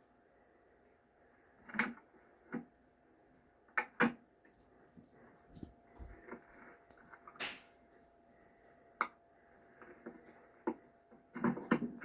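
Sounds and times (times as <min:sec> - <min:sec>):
faint clicks and knocks: 0:09.0 - 0:12.0.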